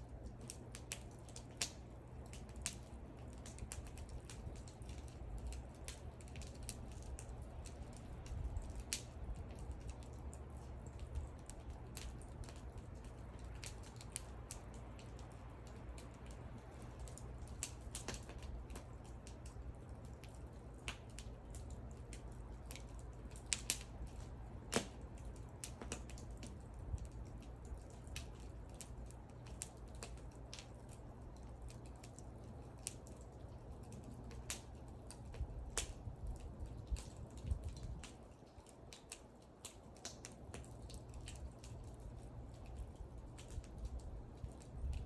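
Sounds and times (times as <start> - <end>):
low steady rumble: 0.0 - 45.0
wood fire crackling: 0.0 - 45.0
sharp snaps: 10.9 - 31.0.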